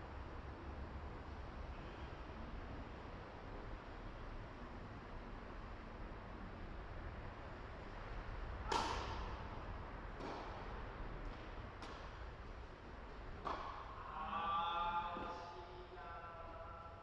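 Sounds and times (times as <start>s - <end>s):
tennis rackets hitting balls: 8.6s - 14.1s.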